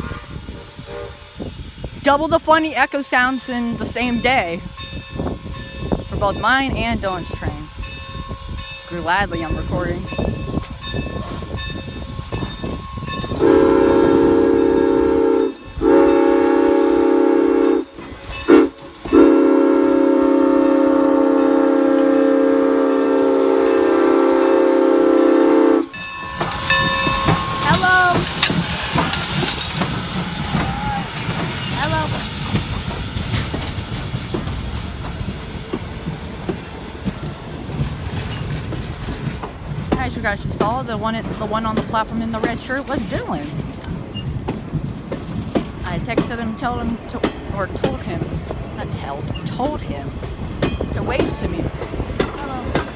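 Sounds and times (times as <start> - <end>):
steam whistle blowing a chord: 0.0 - 1.4, 13.0 - 26.0
steam hiss: 0.0 - 39.4
train cars rumbling: 0.0 - 52.9.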